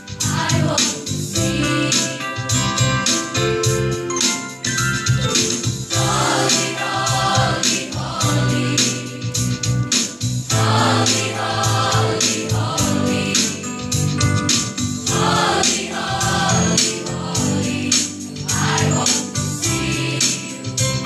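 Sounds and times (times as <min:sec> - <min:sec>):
keyboard accompaniment with beat: 0:00.0 - 0:21.0
choir singing gospel song: 0:00.1 - 0:02.3, 0:05.9 - 0:13.9, 0:15.0 - 0:21.0.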